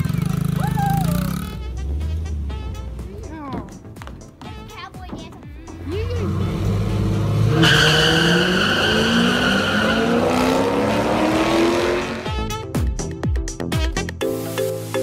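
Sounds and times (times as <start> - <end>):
race car engine accelerating: 5.8 - 12.3.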